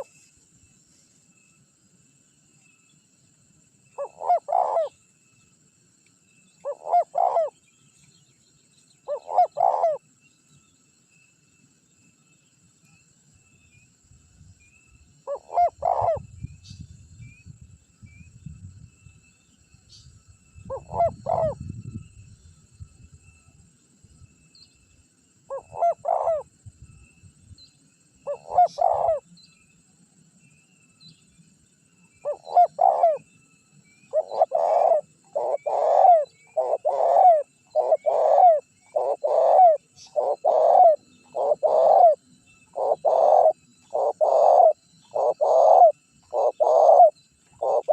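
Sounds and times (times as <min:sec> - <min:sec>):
dove cooing: 0:04.0 - 0:05.0, 0:06.6 - 0:07.6, 0:09.0 - 0:10.0, 0:15.2 - 0:16.3, 0:20.7 - 0:21.8, 0:25.5 - 0:26.5, 0:28.2 - 0:29.2, 0:32.2 - 0:33.2, 0:34.1 - 0:47.9.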